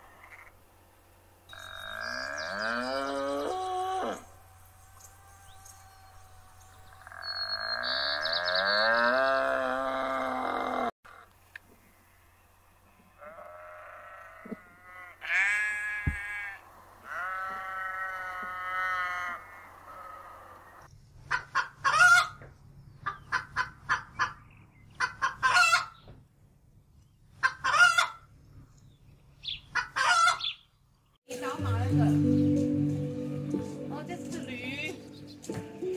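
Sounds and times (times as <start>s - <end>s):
rooster crowing: 1.6s - 7.4s
chickens clucking: 21.3s - 26.0s, 27.4s - 28.2s, 29.5s - 30.6s.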